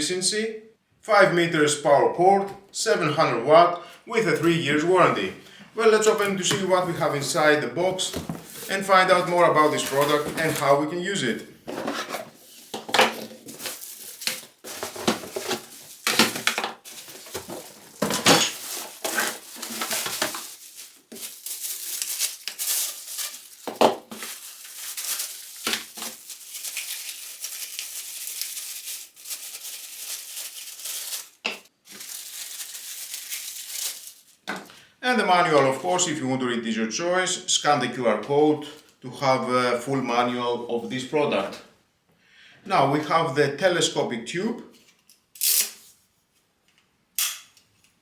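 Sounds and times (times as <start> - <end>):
plastic wrapping rustling: 5.1 - 34.8
handling knocks and scrapes: 7.9 - 10.8, 11.6 - 21.6.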